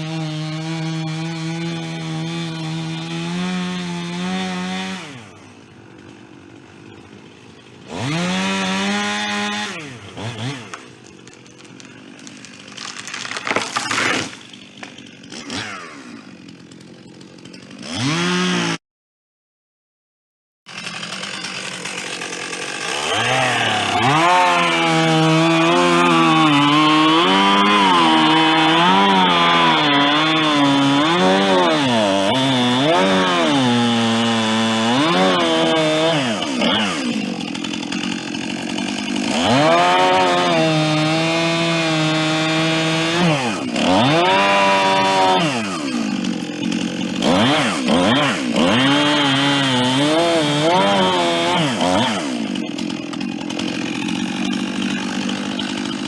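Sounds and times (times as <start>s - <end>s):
chainsaw cutting wood: 0.0s - 18.8s, 20.7s - 56.0s.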